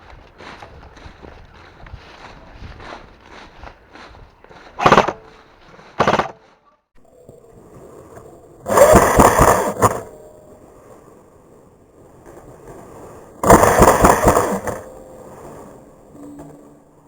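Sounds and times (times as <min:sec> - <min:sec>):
airsoft gun fire bursts: 0:04.8 - 0:05.2, 0:06.0 - 0:06.4, 0:08.7 - 0:10.0, 0:13.4 - 0:14.9
loud burst of noise: 0:06.0 - 0:06.3, 0:08.7 - 0:10.1, 0:13.4 - 0:15.2.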